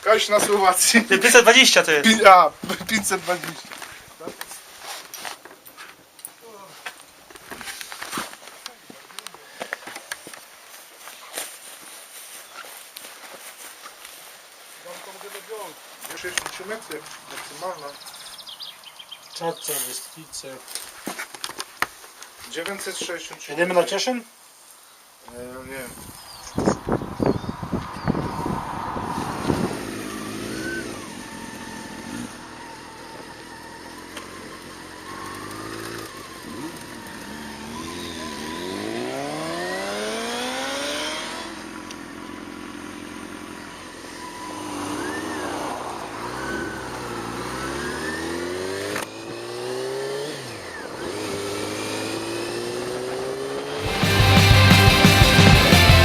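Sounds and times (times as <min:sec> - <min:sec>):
wind noise: 0:25.5 - 0:30.9
motorcycle engine revving through gears: 0:27.2 - 0:56.0
loud rock music: 0:53.8 - 0:56.0.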